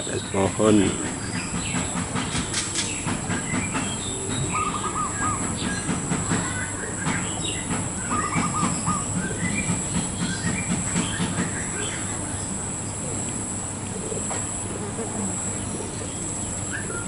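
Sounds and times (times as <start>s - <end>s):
small birds chirping: 0.0s - 17.0s
dove cooing: 4.1s - 5.6s, 8.1s - 9.4s, 13.0s - 17.0s.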